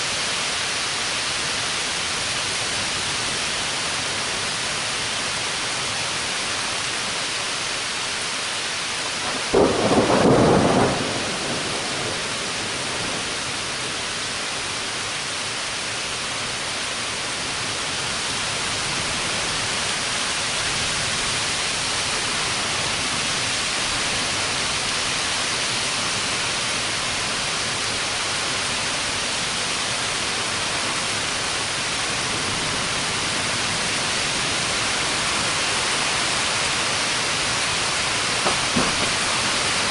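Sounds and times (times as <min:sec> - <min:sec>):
heavy rain: 0:00.0 - 0:39.9
loud thunder clap: 0:09.3 - 0:13.3.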